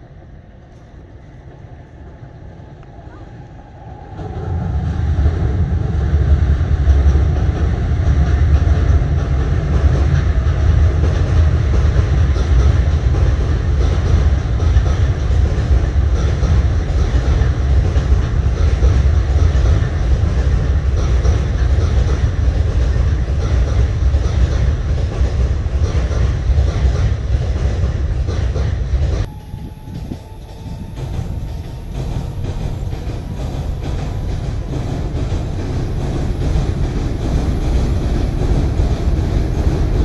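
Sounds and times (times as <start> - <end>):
electric train rumbling on bridge: 0.0 - 40.0
wheels clacking over rail joints: 7.0 - 40.0.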